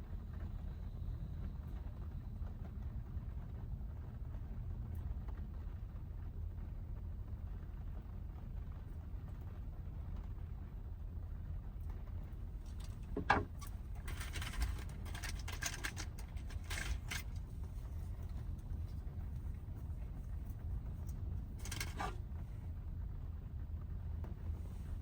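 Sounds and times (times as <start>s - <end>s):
road and engine rumble in van: 0.0s - 25.0s
brief clicks and rattles: 12.6s - 19.6s, 20.2s - 22.2s.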